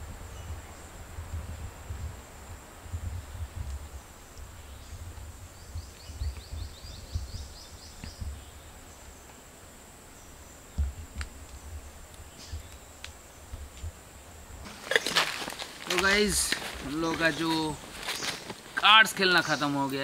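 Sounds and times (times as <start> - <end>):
bird chirping: 3.9 - 9.4.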